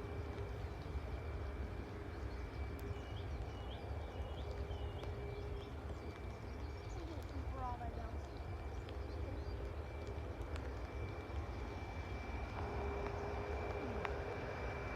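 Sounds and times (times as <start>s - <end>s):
faint high whine: 0.0s - 14.9s
steady low rumble: 0.0s - 14.9s
bird chirping: 2.1s - 9.6s.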